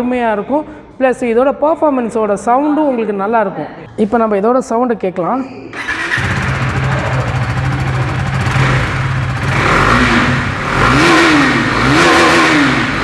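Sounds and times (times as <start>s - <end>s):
motorcycle engine idling and revving: 5.8s - 13.0s.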